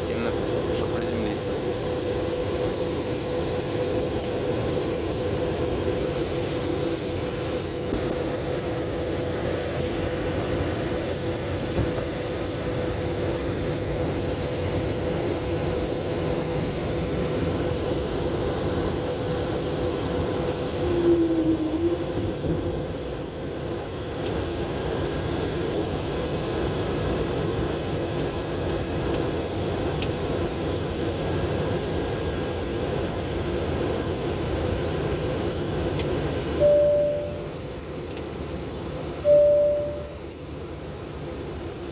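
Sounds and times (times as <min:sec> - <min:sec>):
airliner cabin noise: 0:00.0 - 0:41.8.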